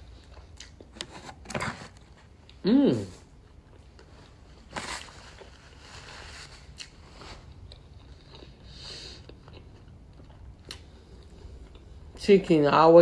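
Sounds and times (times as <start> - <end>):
person chewing food: 0.0 - 1.1, 3.3 - 12.2.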